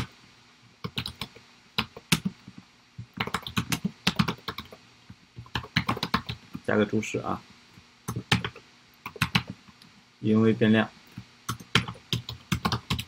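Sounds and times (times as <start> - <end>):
computer keyboard typing: 0.8 - 4.8, 5.4 - 6.7, 8.1 - 9.7, 11.1 - 13.0.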